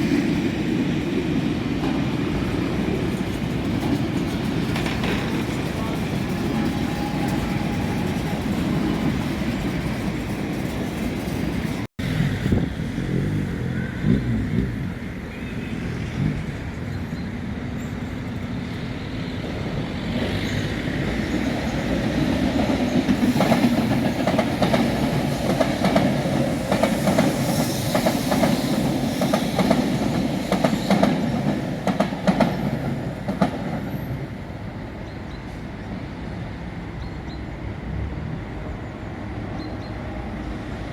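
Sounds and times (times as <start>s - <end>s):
train rumbling past: 0.0s - 40.9s
wheels clicking over rail joints: 1.8s - 11.9s.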